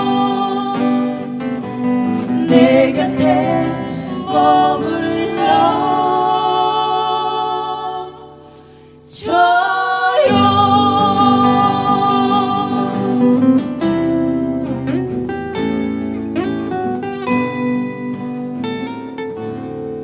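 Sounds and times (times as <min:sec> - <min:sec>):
ballad backing track: 0:00.0 - 0:06.8, 0:10.3 - 0:20.0
person singing long notes: 0:02.2 - 0:08.2, 0:09.2 - 0:13.6.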